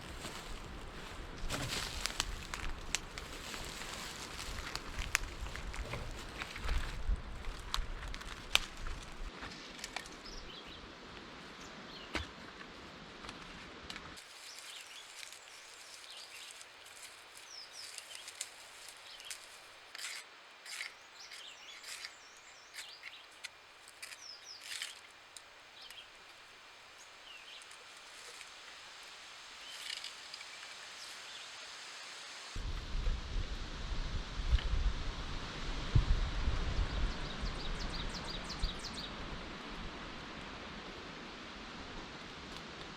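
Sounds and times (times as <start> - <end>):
birds chirping and trilling: 14.3 - 31.6, 37.2 - 39.1
low rumble: 32.6 - 39.9.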